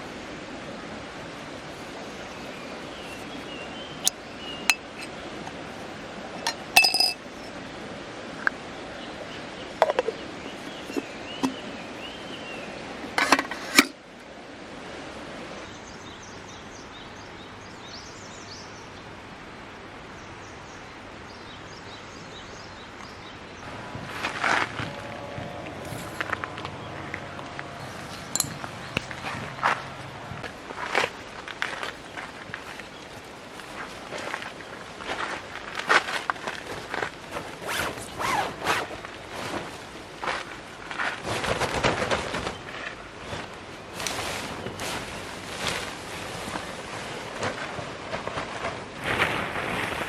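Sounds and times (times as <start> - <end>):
river water rushing: 0.0 - 16.2, 23.6 - 40.9
birds chirping: 1.7 - 5.4, 8.9 - 12.8, 24.7 - 35.0
metal or glass clinking: 6.4 - 7.4, 25.8 - 26.5, 28.0 - 29.2.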